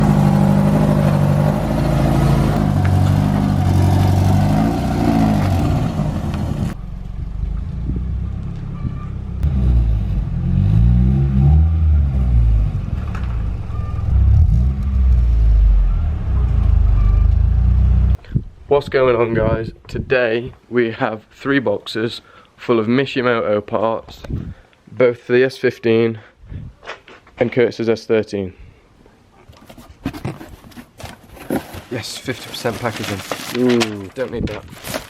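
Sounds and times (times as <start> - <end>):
car engine revving: 0.0 - 18.2.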